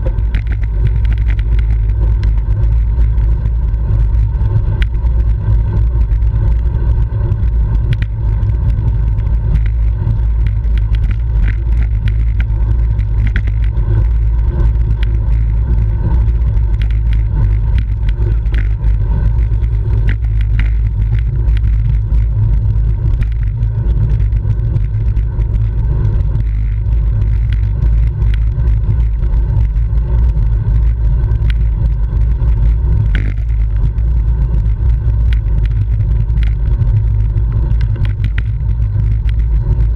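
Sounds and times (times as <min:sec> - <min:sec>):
small clicks and ticks: 0:00.0 - 0:39.9
wind buffeting microphone: 0:00.0 - 0:39.9.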